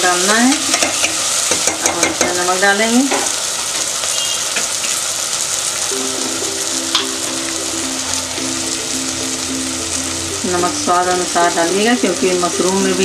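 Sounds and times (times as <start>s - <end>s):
food frying in hot oil: 0.0s - 13.0s
soft background music: 5.8s - 13.0s.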